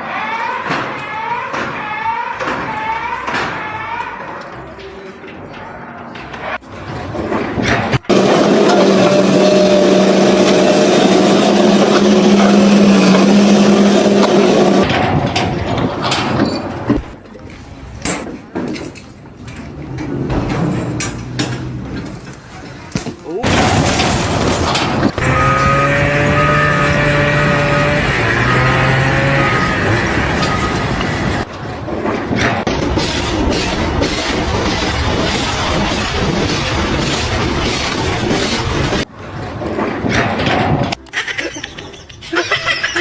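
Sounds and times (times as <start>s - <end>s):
machine engine droning: 6.6s - 17.2s, 23.4s - 41.0s
motor running: 8.0s - 14.9s, 25.1s - 31.5s.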